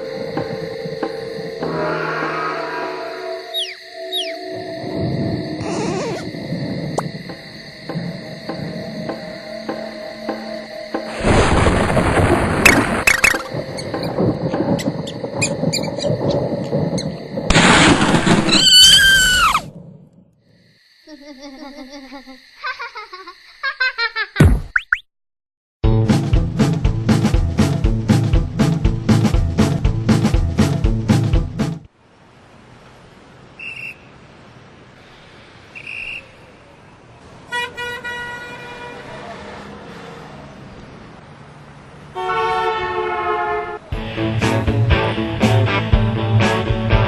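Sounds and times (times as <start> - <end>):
rush with descending squeal: 1.6 - 5.0, 17.0 - 19.7
high-pitched whistle-like tones: 1.6 - 6.2
rumbling clattering noise: 11.6 - 18.5
faint steady hiss: 31.9 - 38.0.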